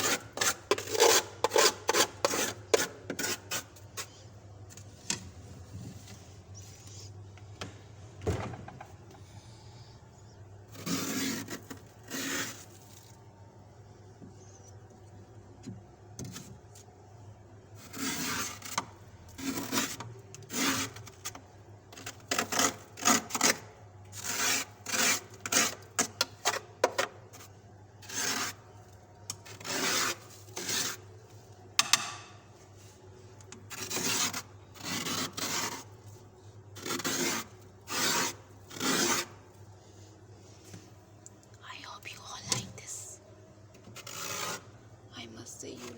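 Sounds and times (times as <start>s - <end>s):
frost being scraped off: 10.7s - 13.2s, 27.3s - 31.1s, 33.6s - 39.5s, 43.9s - 44.8s.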